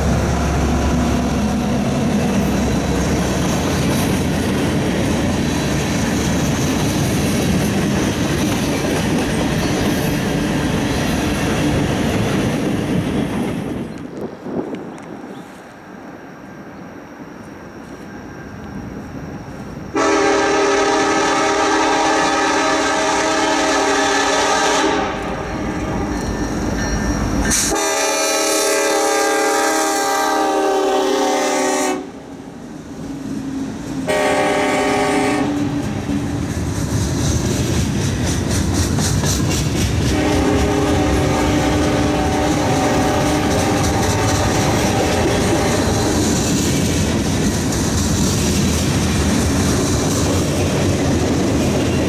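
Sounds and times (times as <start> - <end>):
wheels clacking on rails: 0.0 - 15.9, 23.2 - 27.9, 32.9 - 52.0
train rumbling: 0.0 - 52.0
locomotive horn blasts: 20.0 - 25.5, 27.5 - 32.2, 34.1 - 35.7, 40.1 - 46.1.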